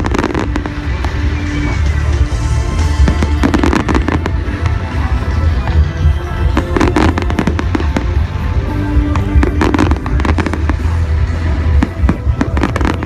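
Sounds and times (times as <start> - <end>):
fireworks banging and crackling: 0.0 - 13.0
music playing: 0.0 - 13.0.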